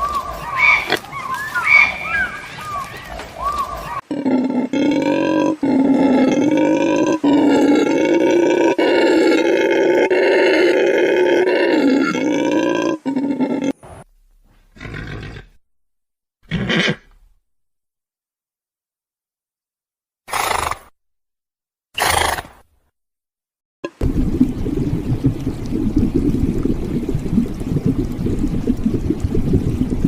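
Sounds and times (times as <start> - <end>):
large wild animal calling: 0.0 - 13.8.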